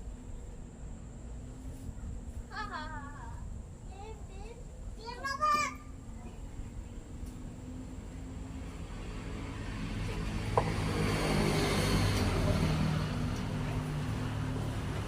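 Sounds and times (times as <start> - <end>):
vehicle engine passing by: 6.8 - 15.0.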